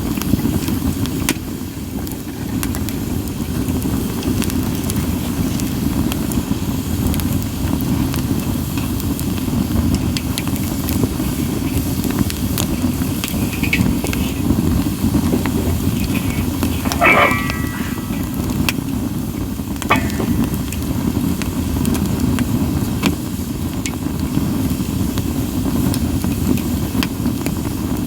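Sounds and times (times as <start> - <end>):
firewood crackling and popping: 0.0 - 28.0
low fire rumble: 0.0 - 28.0.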